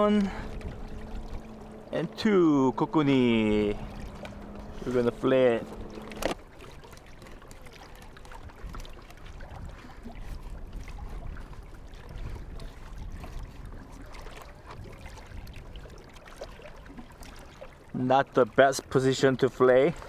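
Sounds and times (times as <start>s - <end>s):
steady low rumble: 0.0s - 6.4s
water lapping against kayak hull: 0.0s - 20.0s
small clicks and knocks: 5.8s - 6.4s.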